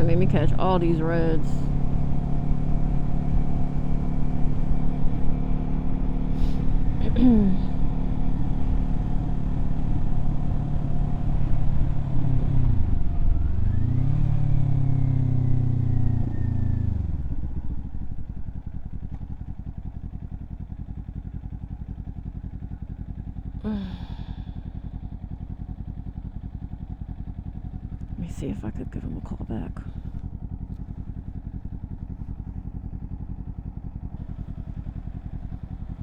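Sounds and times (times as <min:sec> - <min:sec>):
motorcycle engine: 0:00.0 - 0:36.0.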